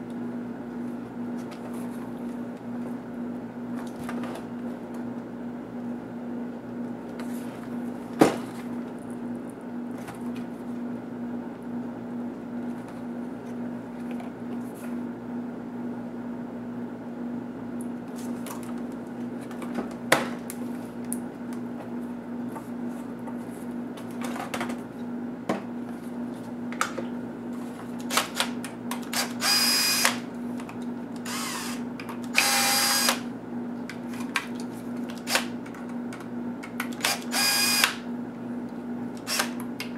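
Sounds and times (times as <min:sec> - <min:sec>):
electric screwdriver whirring: 0:29.2 - 0:30.2, 0:31.2 - 0:33.2, 0:37.0 - 0:38.0, 0:39.2 - 0:39.6.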